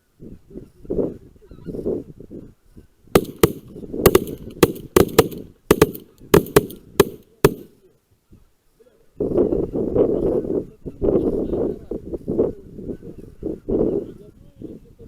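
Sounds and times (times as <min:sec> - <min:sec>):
shotgun shots: 0:03.2 - 0:07.8.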